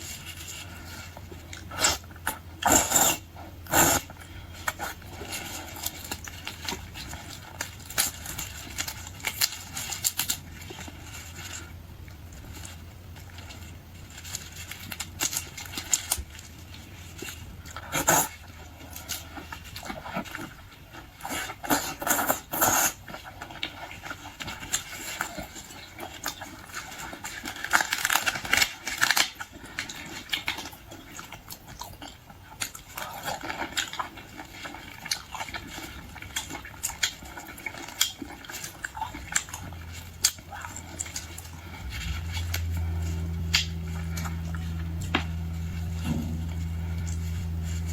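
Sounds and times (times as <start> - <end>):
wet chewing and smacking: 0.0 - 47.9
steady low hum: 38.8 - 47.9.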